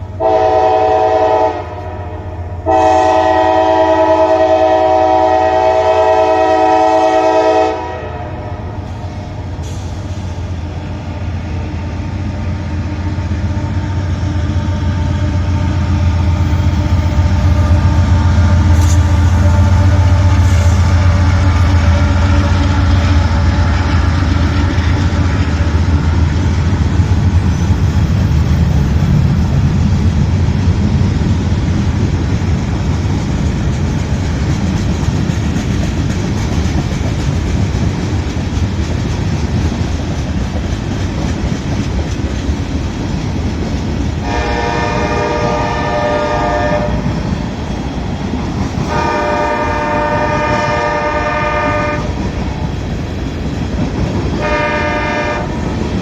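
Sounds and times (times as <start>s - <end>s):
locomotive engines humming: 0.0s - 56.0s
train wheels rolling on rails: 0.0s - 56.0s
locomotive horn: 0.2s - 8.8s, 15.0s - 24.0s, 44.2s - 47.2s, 48.8s - 52.3s, 54.4s - 55.8s.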